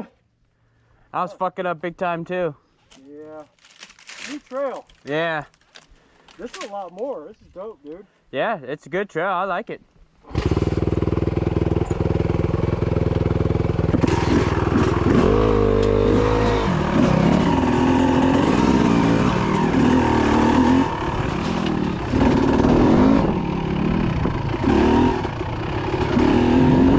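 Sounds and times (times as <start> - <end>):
dirt bike engine revving: 10.2 - 26.9.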